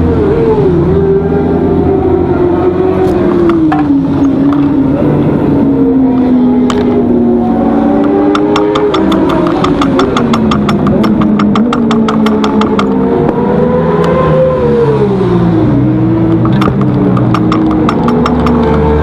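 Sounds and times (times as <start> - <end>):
motorcycle engine running hard: 1.3 - 5.6, 6.5 - 19.0
fast even ticks: 8.0 - 13.0, 16.3 - 19.0.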